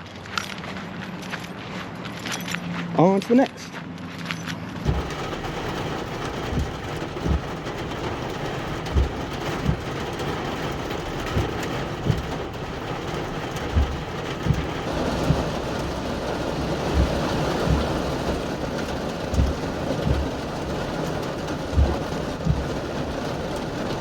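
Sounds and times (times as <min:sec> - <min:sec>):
footsteps thudding: 0:03.8 - 0:20.6, 0:21.7 - 0:22.8
steady rain falling: 0:04.8 - 0:24.0.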